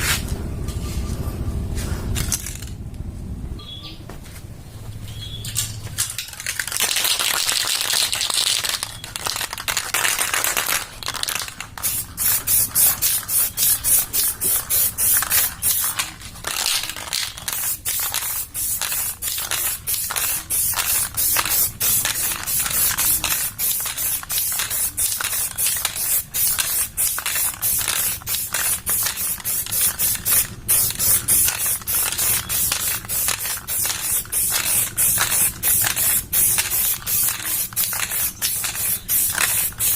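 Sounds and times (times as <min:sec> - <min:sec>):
aerosol spray can hissing: 0:10.0 - 0:39.9.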